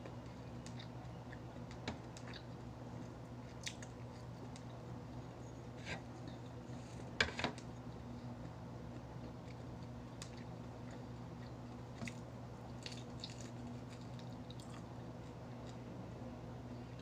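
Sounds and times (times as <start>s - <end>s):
person chewing: 8.4s - 15.8s.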